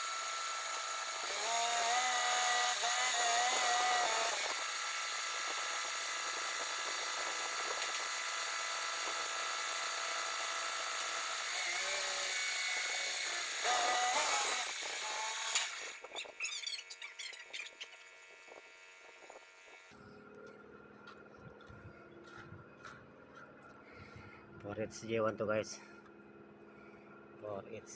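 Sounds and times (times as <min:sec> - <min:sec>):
power tool whining: 0:00.0 - 0:20.0.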